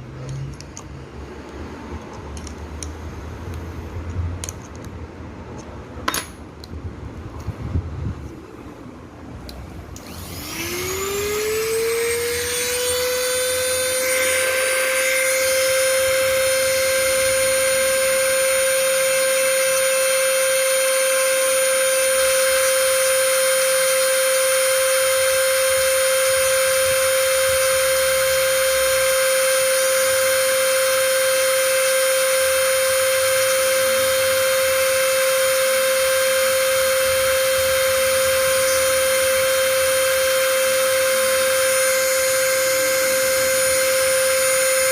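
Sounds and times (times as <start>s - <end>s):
small electric motor whining: 10.0s - 44.9s.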